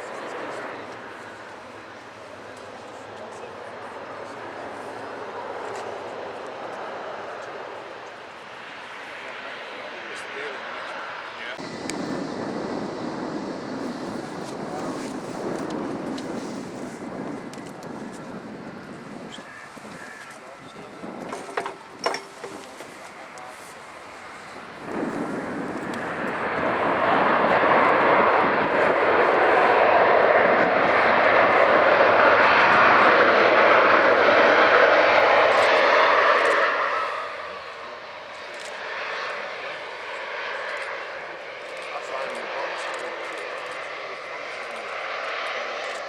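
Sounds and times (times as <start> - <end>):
jet engine rushing: 0.0 - 46.0.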